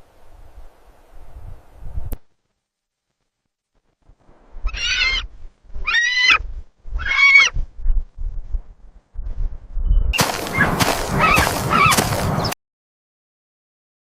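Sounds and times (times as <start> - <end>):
animal squealing: 4.6 - 6.4, 7.0 - 7.5, 10.5 - 12.2
animal honking calls: 10.4 - 12.2.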